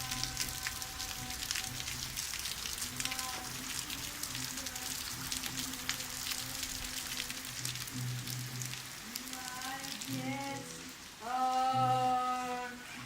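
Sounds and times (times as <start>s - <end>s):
sharp drips: 0.0s - 12.5s
rain falling: 0.0s - 13.0s.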